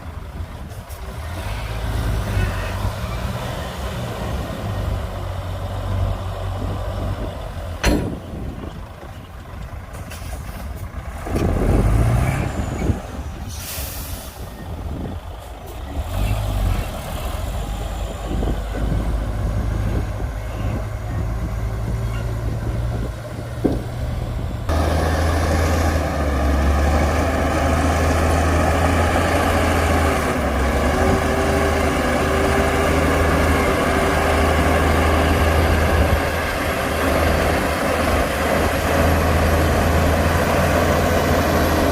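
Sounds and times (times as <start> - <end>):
heavy diesel machinery engines: 0.0 - 41.9
air hiss: 13.5 - 14.5.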